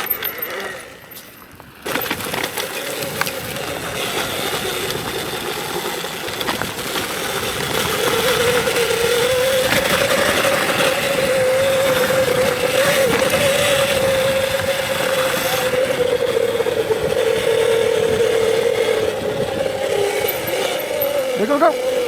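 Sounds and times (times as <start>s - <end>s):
electric motor whining: 0.0s - 22.0s.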